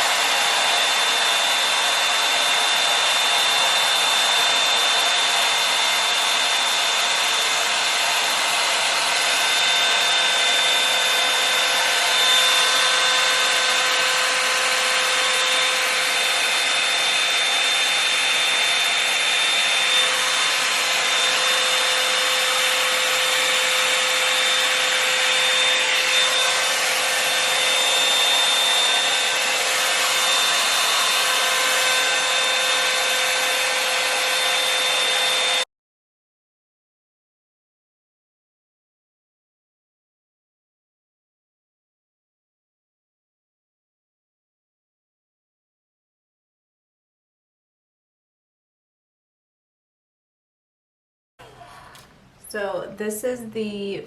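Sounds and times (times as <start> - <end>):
hair dryer blowing air: 0.0 - 35.7, 51.4 - 54.0.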